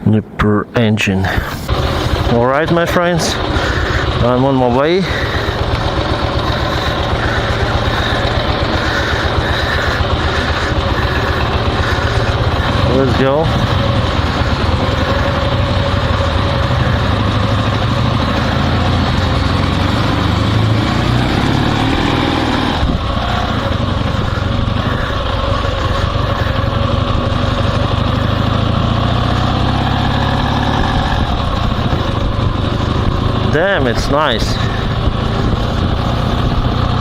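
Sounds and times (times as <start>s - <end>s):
motorcycle engine running: 1.3s - 37.0s.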